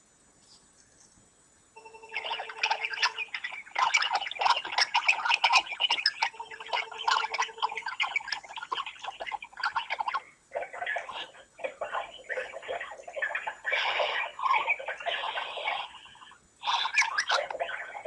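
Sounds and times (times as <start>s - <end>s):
steady electronic tone: 1.8s - 10.2s
garbled electronic clicking: 1.8s - 16.2s.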